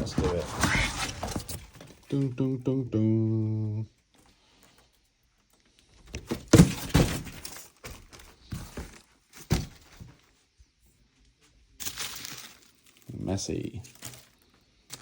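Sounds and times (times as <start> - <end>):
packing being broken apart: 11.8 - 13.1, 13.9 - 15.0.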